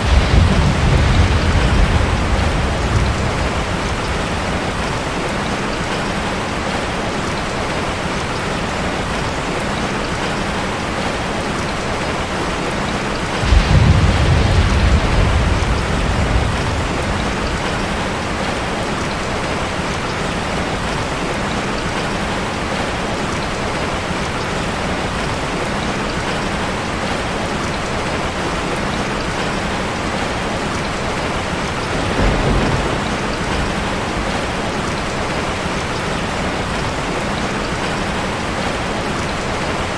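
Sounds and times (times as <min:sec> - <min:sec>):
deep rumble: 0:00.0 - 0:05.3, 0:13.4 - 0:18.7
rain on a metal roof: 0:00.0 - 0:39.9.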